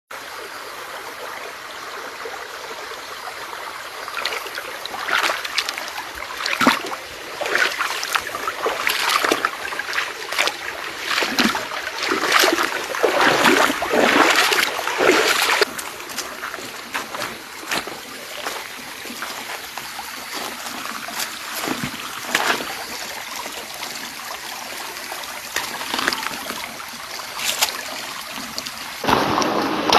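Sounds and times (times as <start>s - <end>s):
stream water running: 0.1s - 29.9s
irregular splashing: 4.2s - 23.0s.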